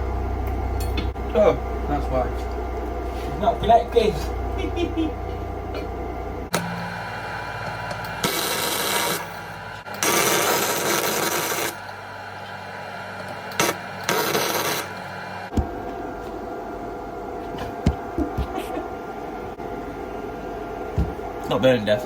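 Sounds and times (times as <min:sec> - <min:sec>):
low hum: 0:00.0 - 0:10.0
welding arc crackle: 0:07.8 - 0:11.9, 0:13.5 - 0:14.9.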